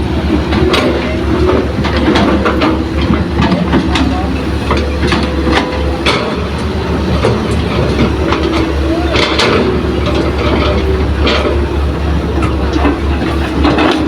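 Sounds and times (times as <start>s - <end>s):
heavy diesel engine running: 0.0s - 14.0s
wavering hydraulic whine: 0.0s - 14.0s
metallic clanks and knocks: 0.5s - 14.0s.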